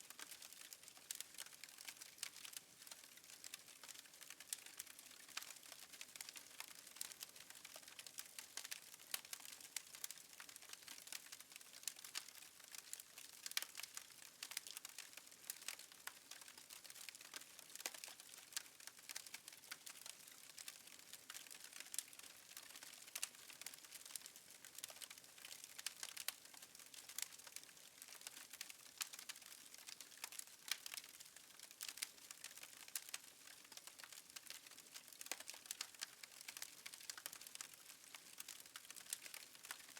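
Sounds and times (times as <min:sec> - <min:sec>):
wood fire crackling: 0:00.1 - 0:39.9.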